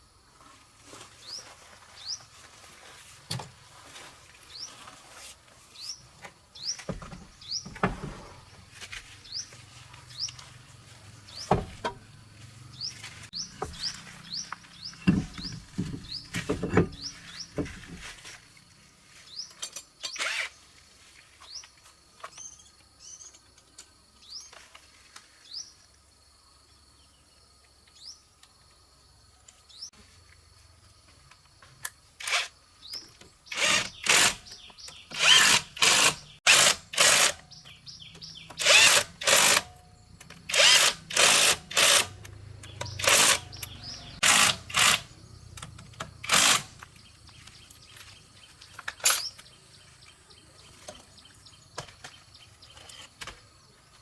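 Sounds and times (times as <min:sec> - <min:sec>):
power tool short bursts: 0:35.2 - 0:37.4, 0:38.6 - 0:39.6, 0:43.0 - 0:45.0.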